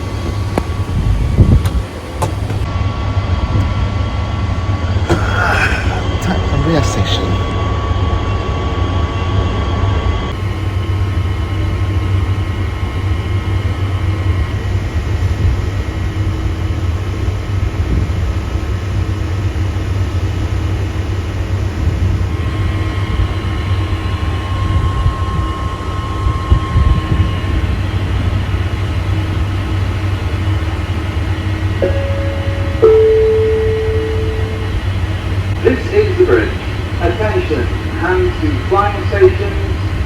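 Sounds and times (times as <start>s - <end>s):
faint hum tones: 31.6s - 37.3s.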